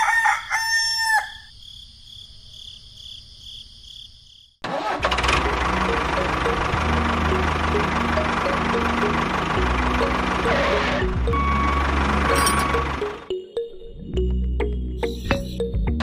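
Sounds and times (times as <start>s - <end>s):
rooster crowing: 0.0s - 1.5s
tractor engine running: 4.6s - 13.3s
faint high chirping: 15.0s - 15.7s.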